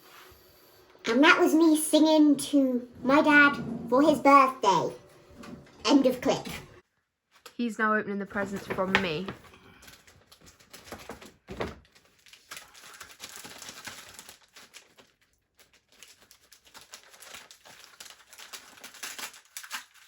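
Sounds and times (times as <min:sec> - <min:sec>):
wrapping paper tearing and crinkling: 0:08.4 - 0:20.0.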